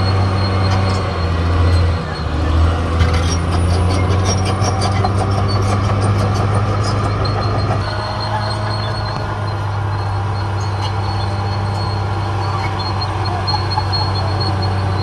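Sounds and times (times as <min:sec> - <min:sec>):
bulldozer diesel engine running: 0:00.0 - 0:15.0
metallic clicking of steel tracks: 0:02.6 - 0:13.0.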